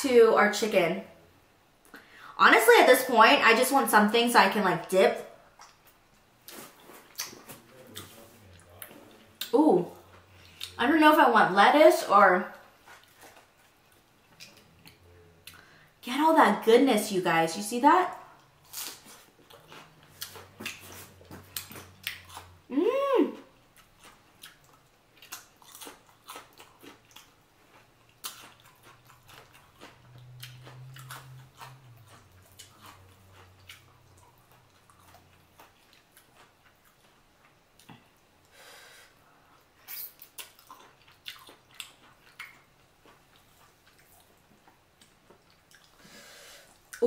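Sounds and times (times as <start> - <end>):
chewing and lip smacks: 5.6 - 10.8, 12.8 - 15.7, 18.7 - 22.6, 23.7 - 38.0, 39.5 - 46.0.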